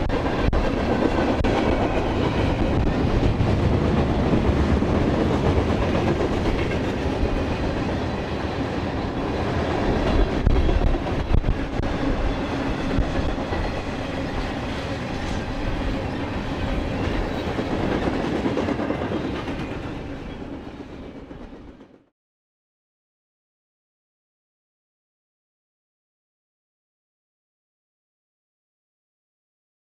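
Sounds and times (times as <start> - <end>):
wind buffeting microphone: 0.0 - 20.6
freight train rolling on rails: 0.0 - 22.1.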